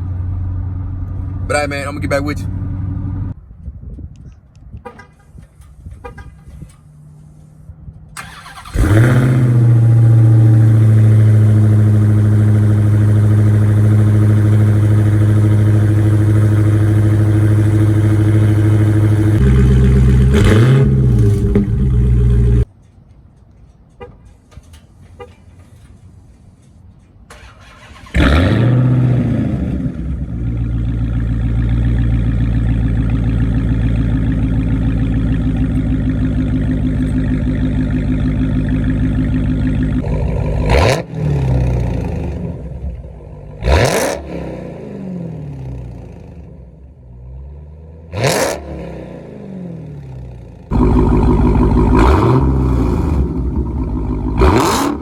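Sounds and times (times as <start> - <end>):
loud car engine idling and revving: 0.0 - 3.4, 4.8 - 22.7, 27.3 - 55.0.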